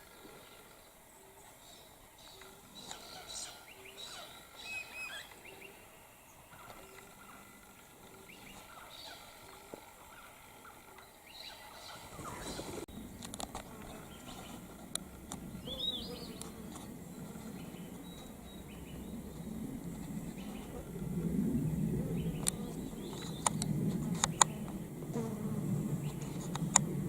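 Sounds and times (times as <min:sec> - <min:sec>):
bird chirping: 0:00.0 - 0:14.7, 0:15.4 - 0:19.6
fly buzzing: 0:24.0 - 0:26.4.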